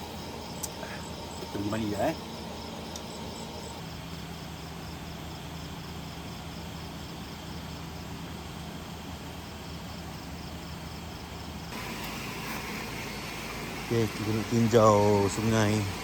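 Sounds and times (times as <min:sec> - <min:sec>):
insect chirping: 0:00.0 - 0:16.0
low steady hum: 0:00.0 - 0:16.0
heavy rain hissing: 0:11.7 - 0:16.0.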